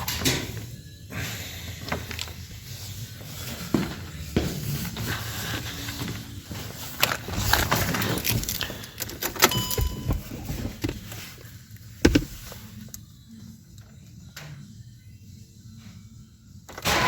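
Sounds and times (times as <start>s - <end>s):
short beep-like tone: 9.5s - 10.3s.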